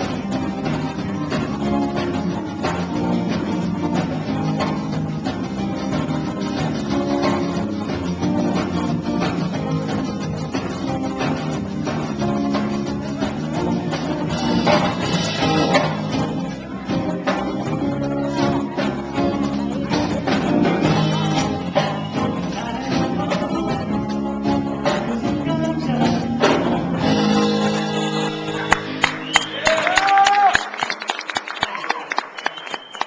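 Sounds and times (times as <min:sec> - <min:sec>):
person singing: 0:12.2 - 0:28.7.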